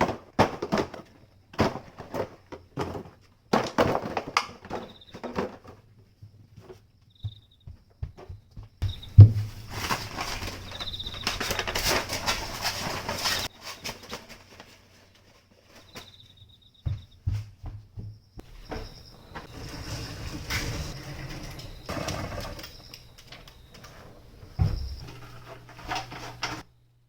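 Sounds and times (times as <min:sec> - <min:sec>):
handling knocks and clicks: 0:20.5 - 0:26.6.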